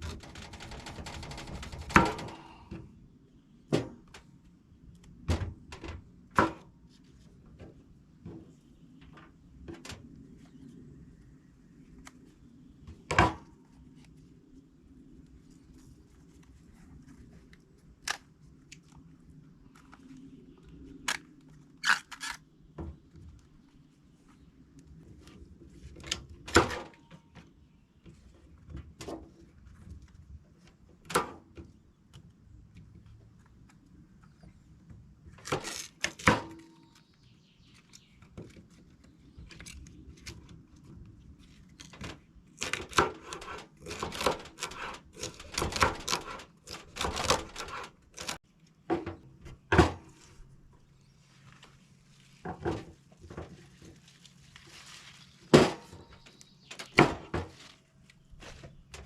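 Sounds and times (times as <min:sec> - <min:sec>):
wooden knocks and clatter: 0:00.0 - 0:02.6.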